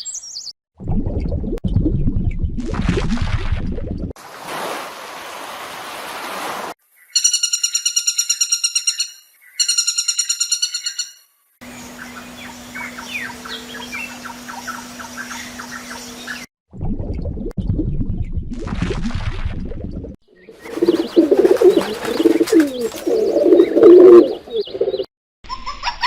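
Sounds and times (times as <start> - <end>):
small birds chirping: 7.0 - 16.5, 20.3 - 25.1
buzzy pulsed bird call: 7.1 - 16.4.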